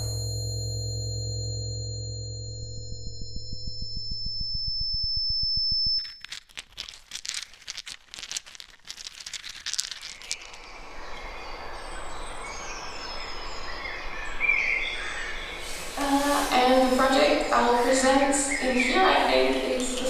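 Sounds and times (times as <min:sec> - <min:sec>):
synthesized pulsing tone: 0:00.0 - 0:06.2
grainy crackling: 0:06.1 - 0:11.1, 0:15.5 - 0:20.0.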